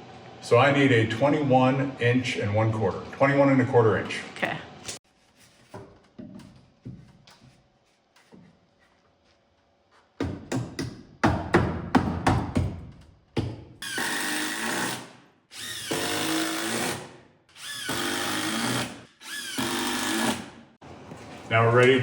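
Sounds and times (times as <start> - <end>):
power drill whining: 13.8 - 20.5.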